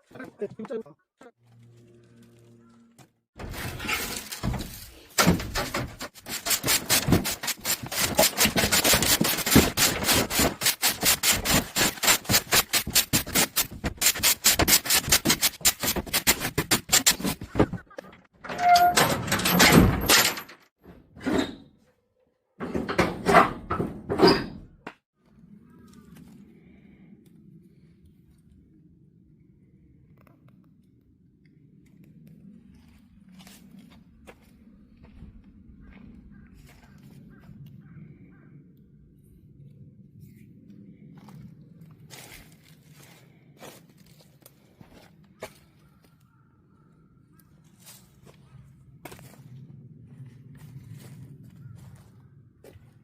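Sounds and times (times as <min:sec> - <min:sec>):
firewood rubbing and rasping: 0:03.4 - 0:18.9.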